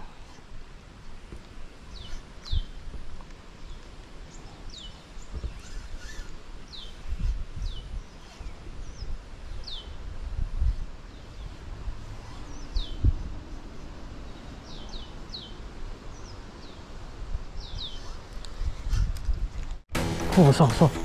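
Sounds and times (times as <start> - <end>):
bird calling with falling notes: 3.7 - 10.0.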